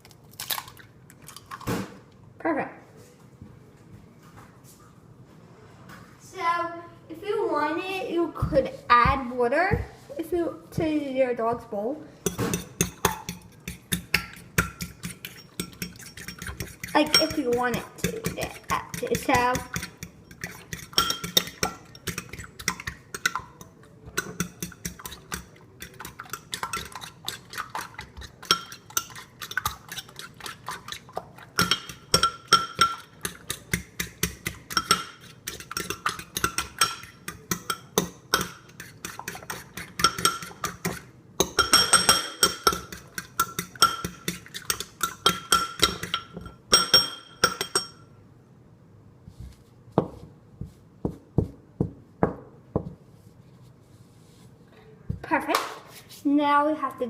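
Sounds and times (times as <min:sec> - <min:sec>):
utensil beating egg in bowl: 0:12.2 - 0:48.0.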